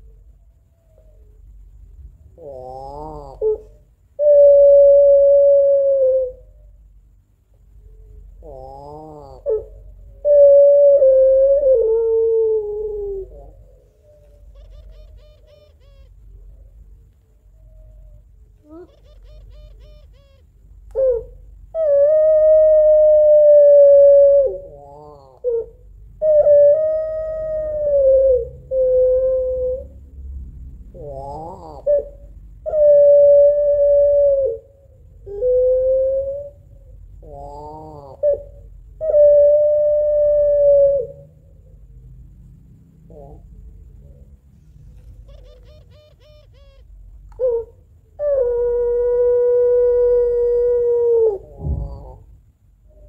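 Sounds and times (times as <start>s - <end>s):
dove crying call: 0.0s - 7.0s, 7.6s - 30.1s, 30.9s - 41.9s, 43.1s - 53.0s
soft thump: 51.6s - 52.0s.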